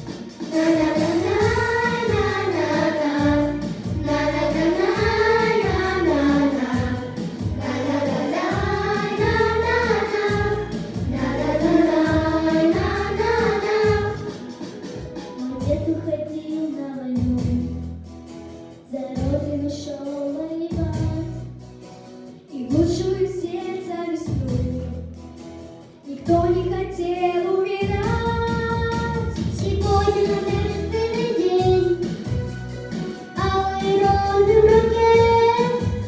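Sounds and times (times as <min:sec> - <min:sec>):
instrumental accompaniment: 0:00.0 - 0:16.0, 0:28.1 - 0:36.0
children's choir singing: 0:00.4 - 0:14.6, 0:29.8 - 0:31.8, 0:33.3 - 0:36.0.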